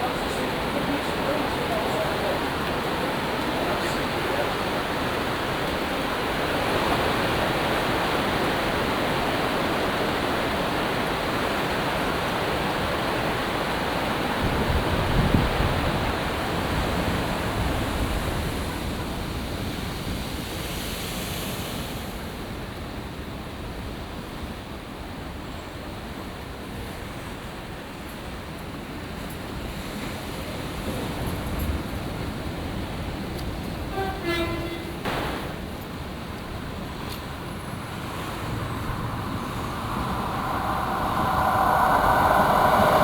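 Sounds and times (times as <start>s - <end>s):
waves pounding a sea wall: 35.0s - 43.0s
heavy low wave crash: 36.1s - 43.0s.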